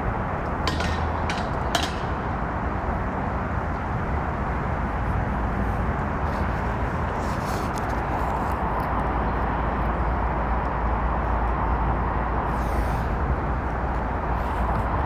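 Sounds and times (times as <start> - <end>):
train rumble and rail noise: 0.0 - 15.0
sharp metallic clicks: 0.7 - 2.5.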